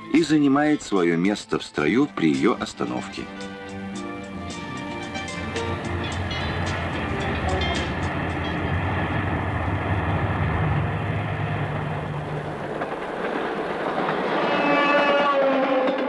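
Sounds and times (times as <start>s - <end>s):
train rumbling past: 1.4s - 16.0s
train horn: 4.2s - 9.7s, 14.3s - 16.0s.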